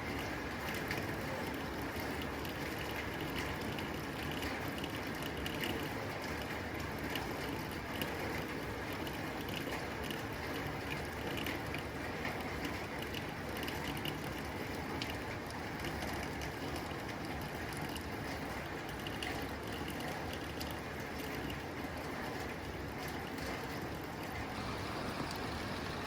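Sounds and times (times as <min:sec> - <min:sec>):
raindrops ticking on tin roof: 0:00.0 - 0:26.0
rain hissing: 0:24.4 - 0:26.0.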